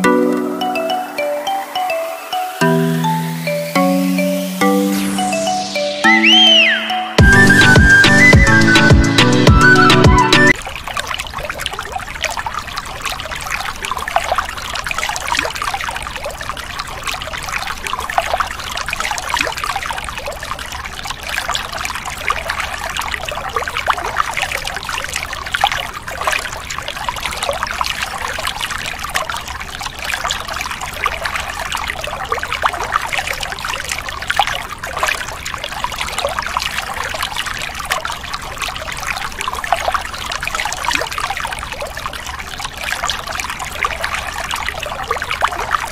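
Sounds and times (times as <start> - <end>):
water pouring and splashing on plastic: 10.5 - 45.9.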